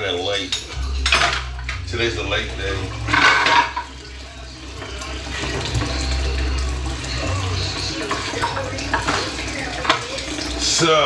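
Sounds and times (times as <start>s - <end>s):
kitchen tap running water: 0.0s - 11.0s.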